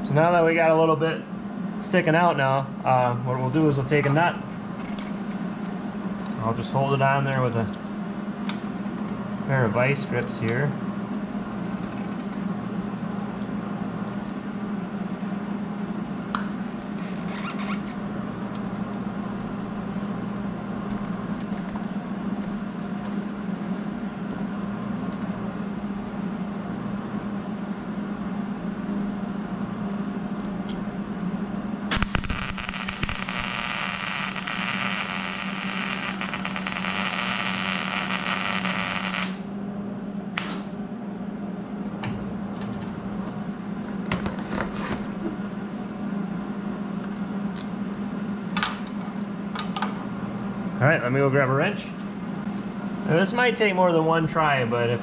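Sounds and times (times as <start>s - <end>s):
low hum: 27.8s - 41.0s
welding arc crackling: 31.9s - 39.5s.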